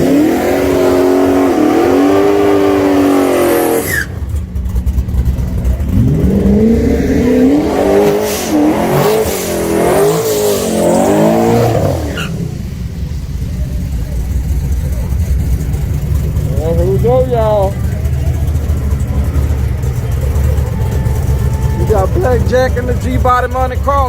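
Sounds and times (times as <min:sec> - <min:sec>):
race car engine revving: 0:00.0 - 0:24.0.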